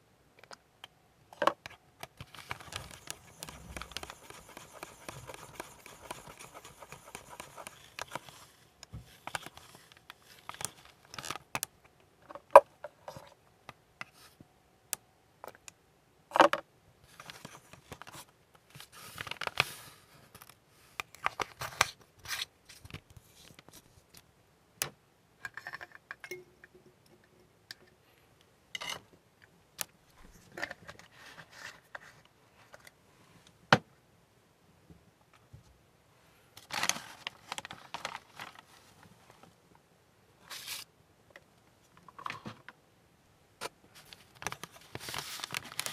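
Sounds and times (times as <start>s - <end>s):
faint hiss: 16.8s - 25.4s, 26.4s - 45.9s.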